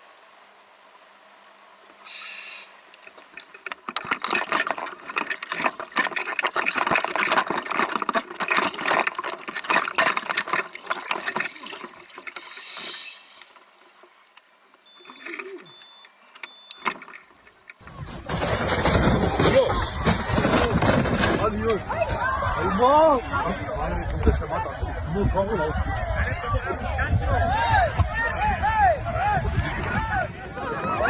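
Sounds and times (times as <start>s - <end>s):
water splashing and rushing: 2.8s - 14.3s.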